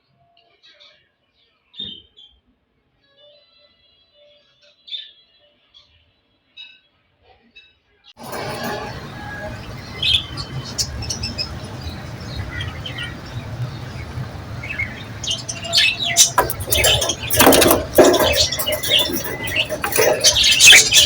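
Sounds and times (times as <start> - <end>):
budgerigars chirping: 8.2 - 21.0
steady low hum: 8.2 - 21.0.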